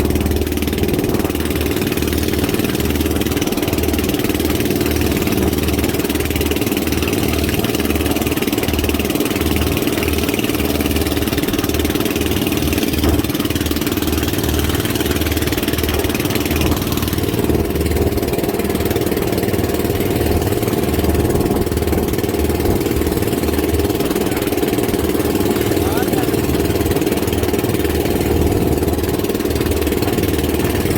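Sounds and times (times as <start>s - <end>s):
boat engine running: 0.0s - 30.9s.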